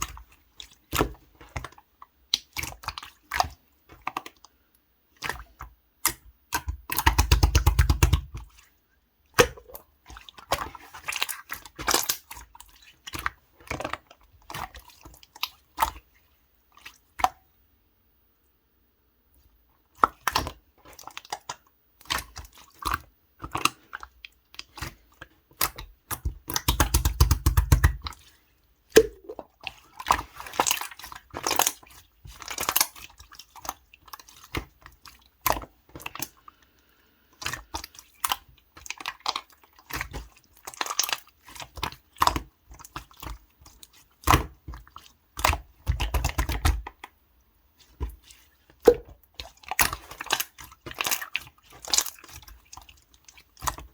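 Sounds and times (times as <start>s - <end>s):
slime squelching and clicking: 0.0s - 4.5s, 5.2s - 8.6s, 9.4s - 16.0s, 19.9s - 36.4s, 37.4s - 47.2s, 47.8s - 53.9s.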